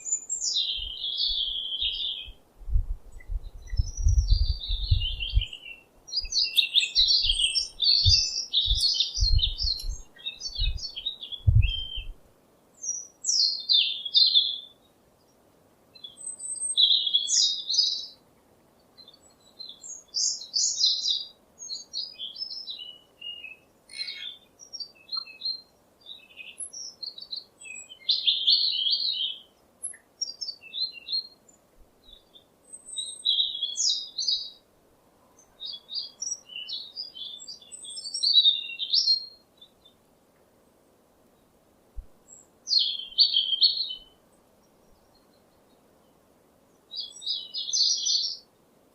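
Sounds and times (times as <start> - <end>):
songbird chirping: 0.0 - 48.9
dull low thumps: 2.6 - 5.5, 8.0 - 10.0, 11.4 - 12.2.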